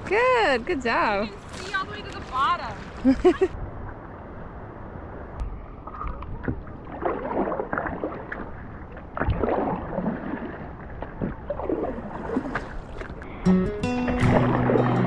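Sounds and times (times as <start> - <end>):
water swishing and sloshing: 0.0 - 15.0
paddle dipping in water: 0.9 - 4.0, 5.4 - 15.0.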